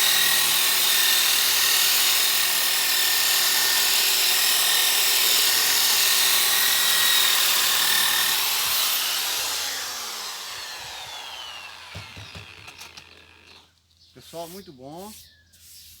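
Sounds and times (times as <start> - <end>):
power sander whining: 0.0 - 13.8
sanding disc abrading wood: 5.0 - 13.6, 14.2 - 16.0.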